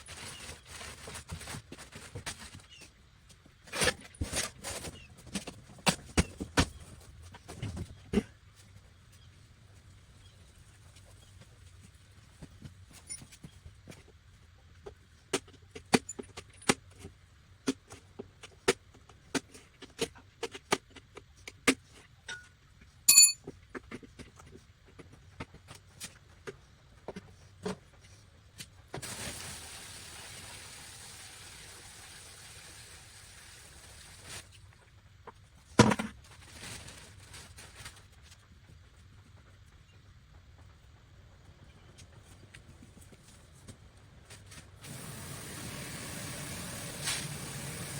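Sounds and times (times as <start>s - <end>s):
ringing metal clink: 23.1s - 23.4s.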